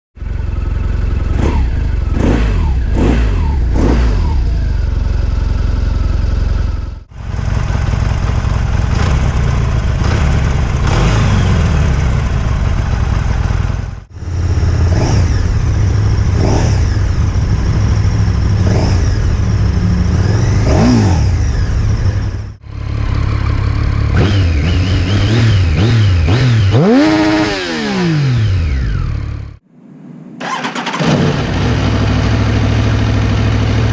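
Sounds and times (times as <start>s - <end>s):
motorcycle engines revving: 0.2s - 33.9s.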